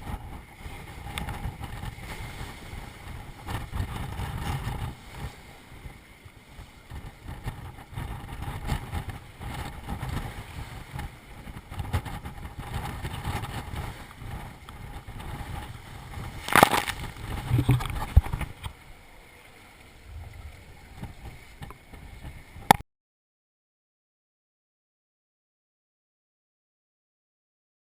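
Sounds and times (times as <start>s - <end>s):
wind buffeting microphone: 0.0s - 18.9s, 20.0s - 22.8s
water rushing along hull: 0.0s - 22.8s.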